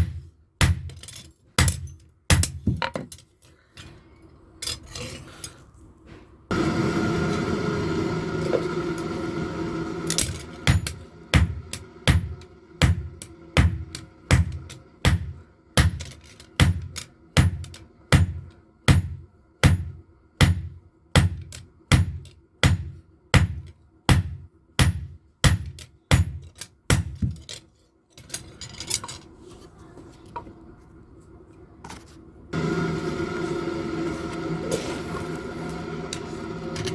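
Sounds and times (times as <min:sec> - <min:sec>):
steady machine noise: 0:06.5 - 0:16.2, 0:32.6 - 0:36.9.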